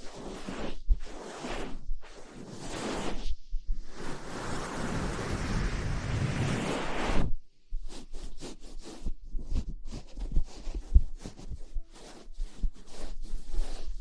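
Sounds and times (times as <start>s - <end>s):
quick brushing strokes: 6.3s - 14.0s
close rustling and rubbing: 7.9s - 14.0s.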